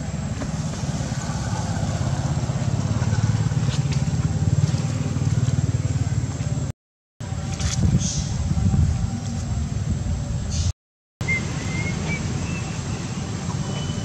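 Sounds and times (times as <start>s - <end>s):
vehicle engine droning: 0.0s - 10.5s.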